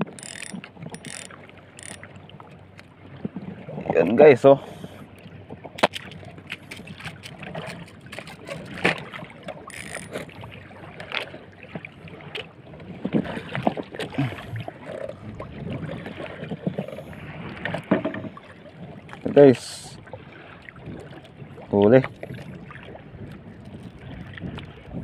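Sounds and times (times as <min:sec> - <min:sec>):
fishing gear knocking and clicking: 0:00.0 - 0:02.1, 0:09.7 - 0:10.4
water sloshing against boat: 0:00.0 - 0:25.0.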